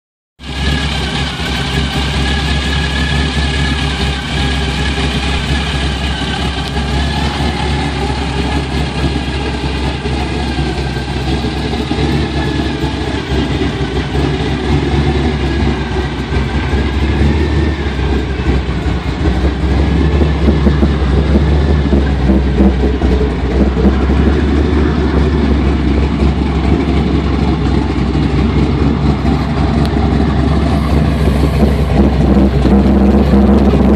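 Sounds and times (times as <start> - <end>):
engine idling: 0.4 - 33.9.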